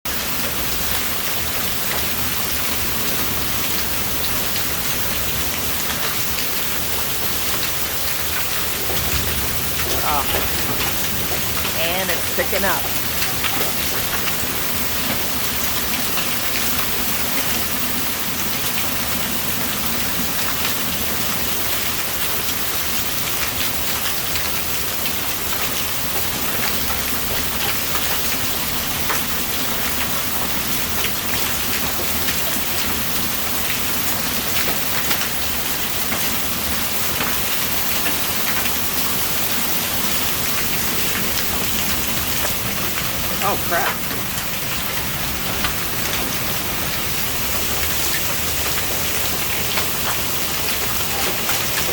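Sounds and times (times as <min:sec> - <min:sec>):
heavy rain: 0:00.1 - 0:51.9
hailstones striking: 0:03.0 - 0:22.7.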